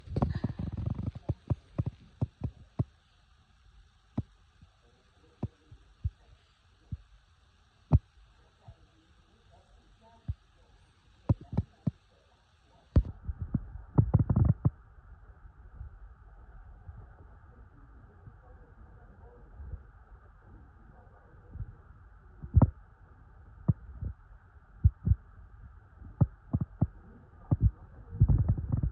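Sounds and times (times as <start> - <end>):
faint steady hum: 0.0 - 28.9
dull low thumps: 24.8 - 28.9.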